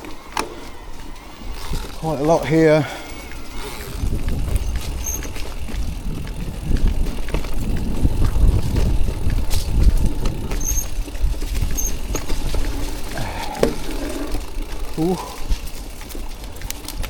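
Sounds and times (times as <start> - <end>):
bike knocking and rattling: 0.0 - 17.0
bike tyres rumbling over trail: 0.0 - 17.0
high squeaks: 0.5 - 5.5, 10.5 - 11.0, 11.7 - 12.4
wind noise on microphone: 0.7 - 2.2, 2.8 - 17.0.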